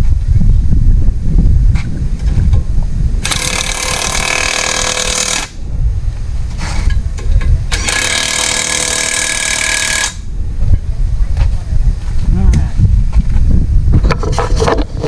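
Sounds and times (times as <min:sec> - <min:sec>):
wind rumbling on microphone: 0:00.0 - 0:15.0
impact wrench hammering: 0:07.7 - 0:10.2.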